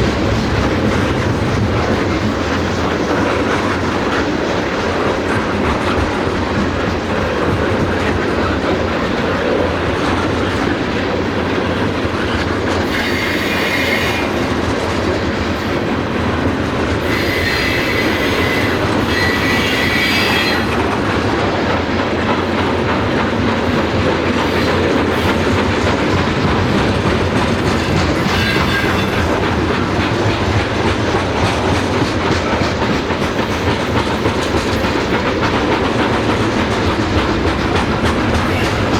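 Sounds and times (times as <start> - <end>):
railcar wheels rumbling on rail: 0.0 - 38.9
high wheel squeals: 28.1 - 29.4.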